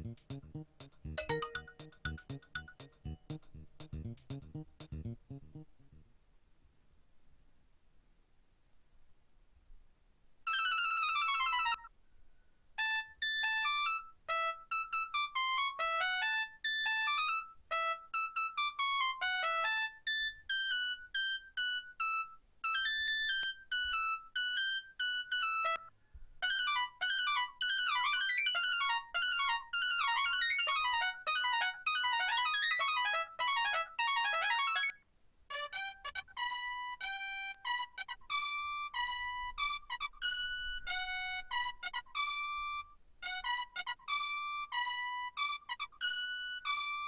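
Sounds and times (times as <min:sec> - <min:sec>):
electronic beeping ringtone tunes: 0:00.0 - 0:05.7, 0:34.1 - 0:35.0.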